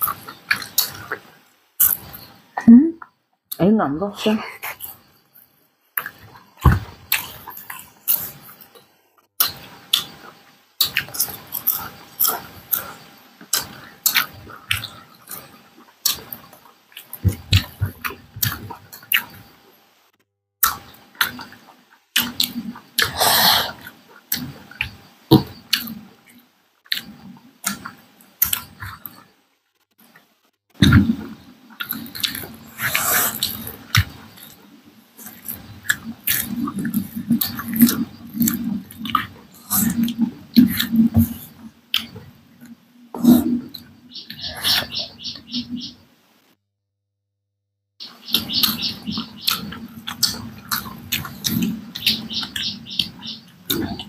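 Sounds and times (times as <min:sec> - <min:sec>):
chewing and wet mouth smacks: 0:35.2 - 0:42.2, 0:49.5 - 0:52.2.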